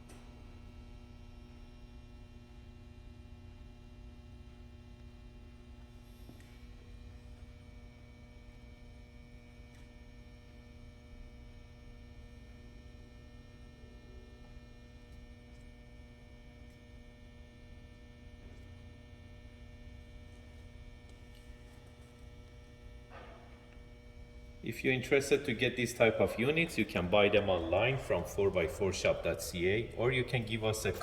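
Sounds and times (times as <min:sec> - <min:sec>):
faint electrical hum: 0:00.0 - 0:31.0.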